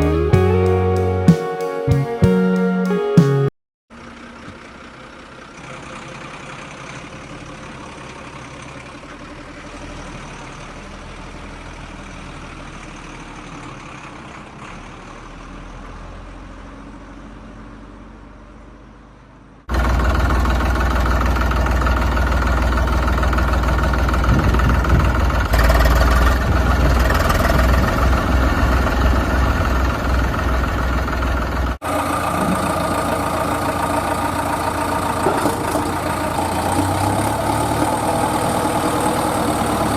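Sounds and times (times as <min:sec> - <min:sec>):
tractor engine running: 0:19.7 - 0:39.9.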